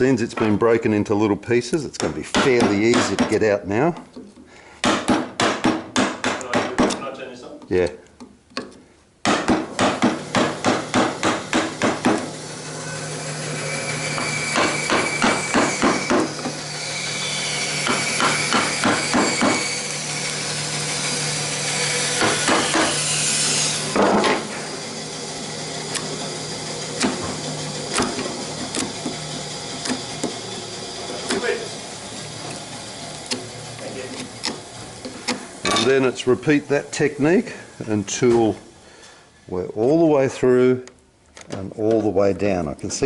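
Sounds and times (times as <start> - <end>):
mallet striking wood chisel: 2.0 - 3.4, 4.8 - 7.0, 9.2 - 12.3, 14.2 - 16.6, 17.8 - 19.7, 22.2 - 23.0, 27.0 - 29.2.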